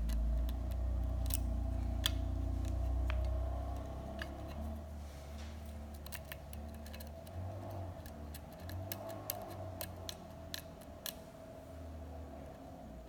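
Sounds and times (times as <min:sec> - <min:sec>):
lock pick clicking on pins: 0:00.0 - 0:04.7, 0:05.7 - 0:11.3
steady low hum: 0:00.0 - 0:13.0.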